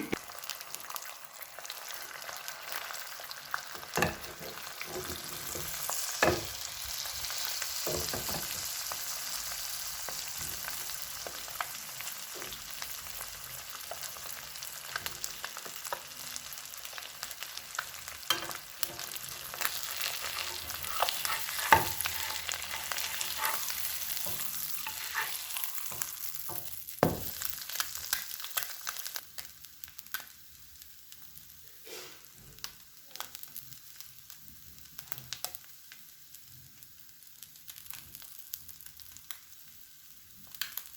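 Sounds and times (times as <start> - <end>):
food sizzling in a pan: 0.0 - 40.9
utensil clicking and scraping: 20.2 - 26.0.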